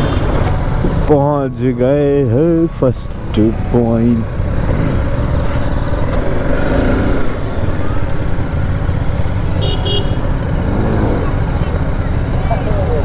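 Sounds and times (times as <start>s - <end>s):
motorcycle engine rumbling: 0.0s - 13.0s
horn toots: 9.5s - 11.4s.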